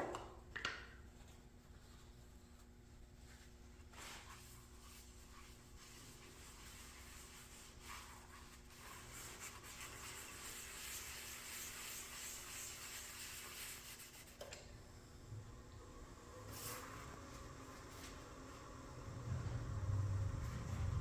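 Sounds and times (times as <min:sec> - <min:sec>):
faint rubbing noise: 0:01.7 - 0:14.4
low steady hum: 0:14.5 - 0:21.0.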